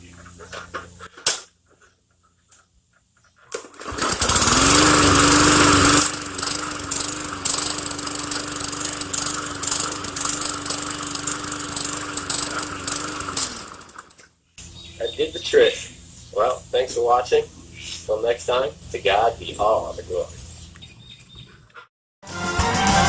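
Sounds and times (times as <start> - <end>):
mower pull-start: 3.4 - 14.3
lawn mower engine running: 3.5 - 20.5.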